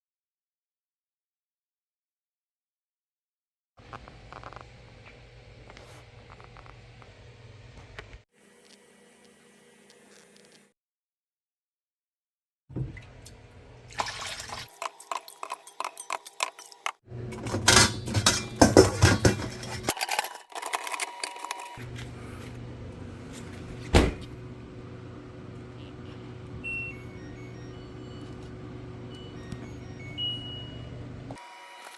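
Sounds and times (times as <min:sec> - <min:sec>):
dishes clattering in a dishwasher: 0:14.7 - 0:20.2.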